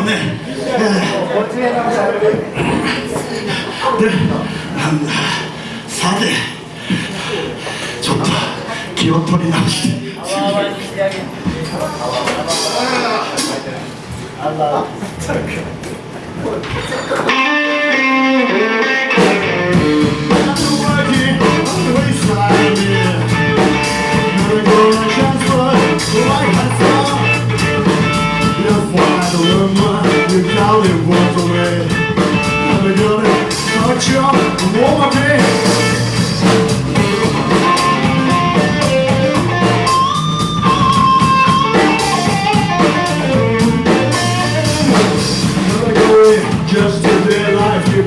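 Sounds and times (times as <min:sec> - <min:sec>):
electric guitar: 0:16.8 - 0:48.0
bass guitar: 0:17.3 - 0:48.0
drum kit beat: 0:19.1 - 0:48.0.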